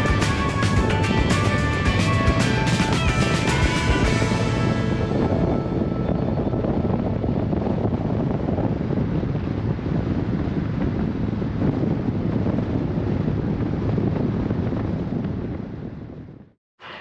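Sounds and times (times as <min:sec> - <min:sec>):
motorcycle engine hum: 0:00.0 - 0:16.2
wind buffeting microphone: 0:00.0 - 0:16.6.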